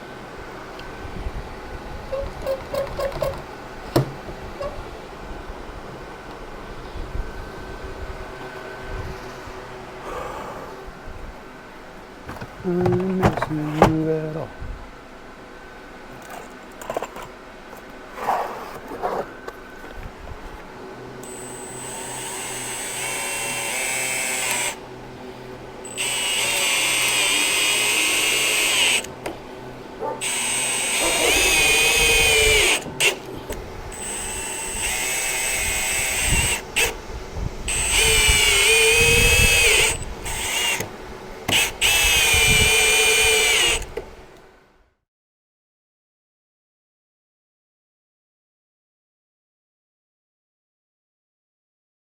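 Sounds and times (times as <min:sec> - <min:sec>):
power drill motor whine: 0:21.2 - 0:44.1.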